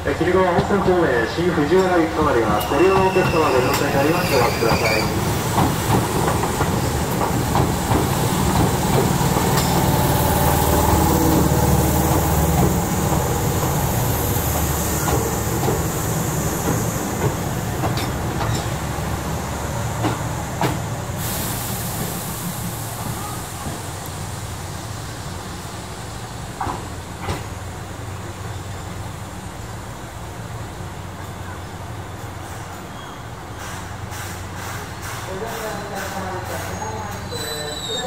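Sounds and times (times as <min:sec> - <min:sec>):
train wheels rumbling and clacking: 0:00.0 - 0:38.0
high hiss: 0:20.8 - 0:27.6.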